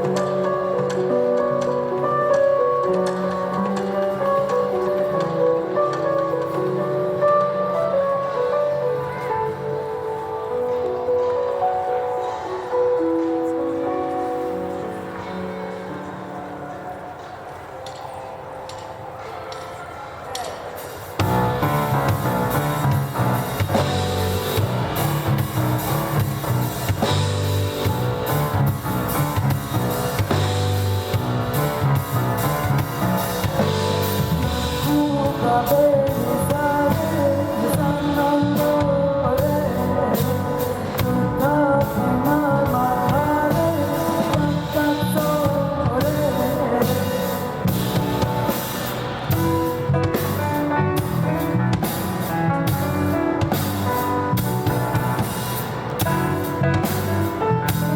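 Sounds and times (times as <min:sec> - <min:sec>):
drum kit: 0:00.0 - 0:08.8, 0:20.4 - 0:57.9
bass guitar: 0:21.2 - 0:57.9
person singing: 0:33.2 - 0:49.5.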